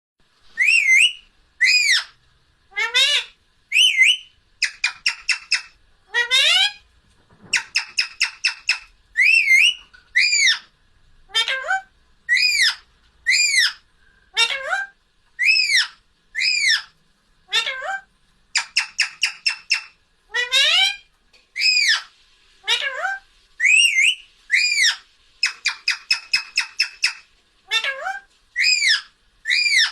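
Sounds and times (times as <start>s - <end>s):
parrot squawking: 0.5s - 6.8s, 7.5s - 10.7s, 11.3s - 29.9s
parrot rapid chattering: 2.7s - 6.8s, 7.5s - 10.6s, 17.5s - 21.0s, 21.6s - 29.9s.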